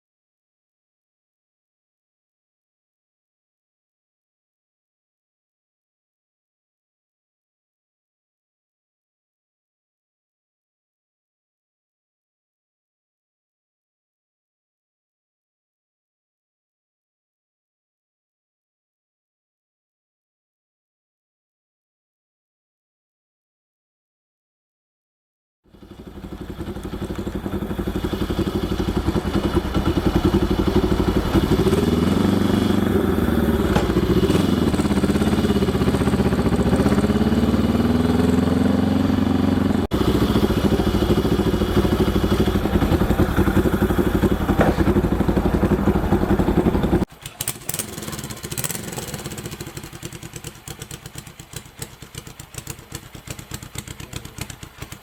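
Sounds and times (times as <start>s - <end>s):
motorcycle engine revving and idling: 25.7s - 55.0s.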